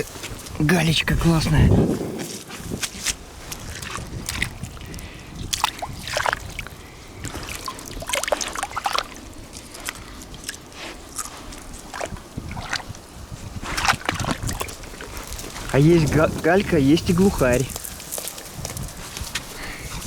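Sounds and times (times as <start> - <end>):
water sloshing: 3.4 - 20.0
pebbles clicking and crunching: 14.6 - 20.0.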